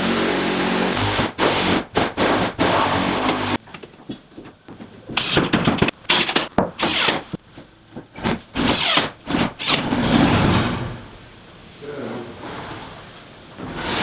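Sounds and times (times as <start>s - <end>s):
scraping and knocking on materials: 1.0s - 11.2s.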